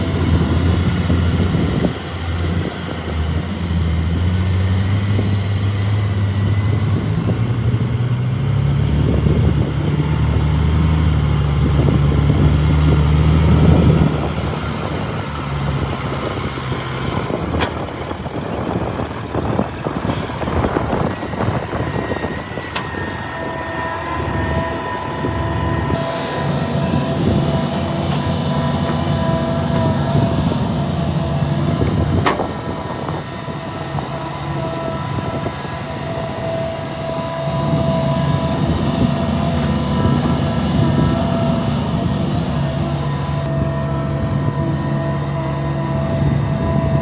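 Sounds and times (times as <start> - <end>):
heavy diesel machinery running: 0.0 - 47.0.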